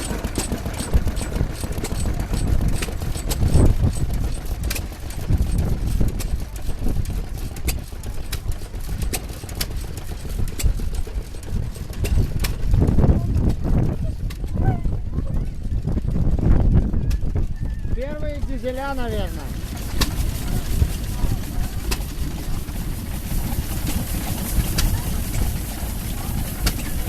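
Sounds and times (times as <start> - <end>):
old engine rumbling: 0.0 - 27.0.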